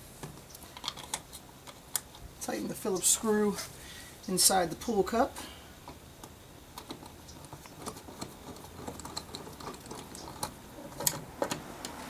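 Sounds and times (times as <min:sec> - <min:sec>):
screwdriver clicking and scraping: 0:05.9 - 0:12.0.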